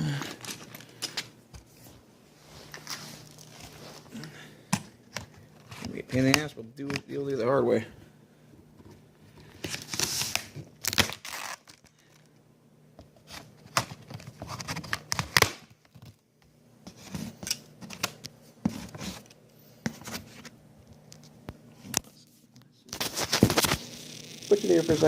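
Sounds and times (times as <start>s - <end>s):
cardboard crinkling and crackling: 2.6s - 4.1s, 22.9s - 25.0s
tape and cardboard ripping: 9.7s - 11.9s, 13.3s - 15.7s, 22.9s - 25.0s.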